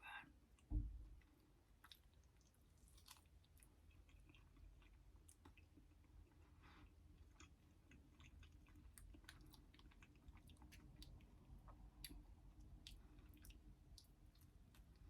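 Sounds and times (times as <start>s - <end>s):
chewing and wet mouth clicks: 0.6s - 6.5s, 7.1s - 15.0s
low thump: 0.7s - 1.1s.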